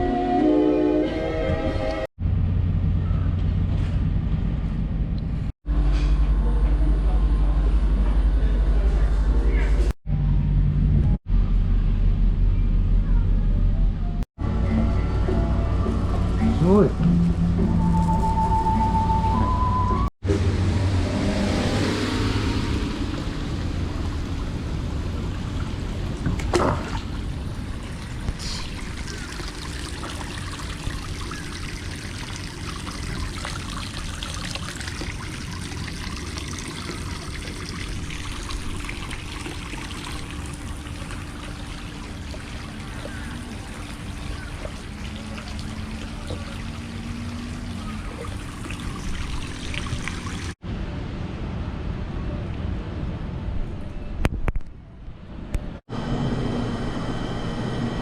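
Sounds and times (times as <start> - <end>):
water trickling and splashing: 21.4 - 50.6.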